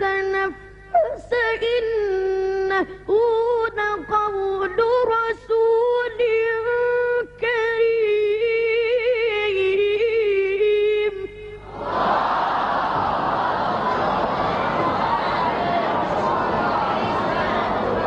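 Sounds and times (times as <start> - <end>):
child chanting recitation: 0.0 - 11.4
crowd noise: 11.7 - 18.0.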